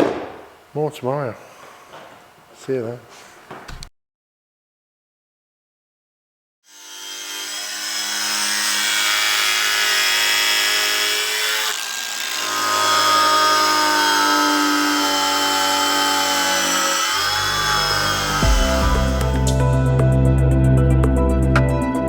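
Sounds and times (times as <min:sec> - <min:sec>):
deep bass: 0:18.4 - 0:22.0.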